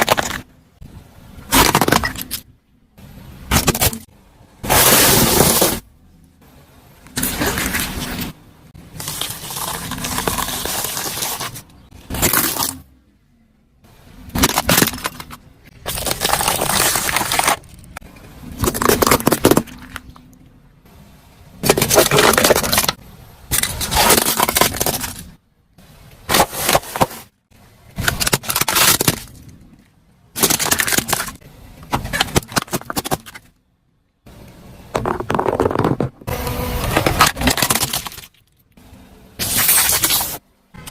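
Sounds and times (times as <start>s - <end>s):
objects crunching and breaking: 0.0s - 0.5s, 8.9s - 12.9s, 14.3s - 20.3s, 21.6s - 25.4s, 27.9s - 33.6s, 35.0s - 38.6s.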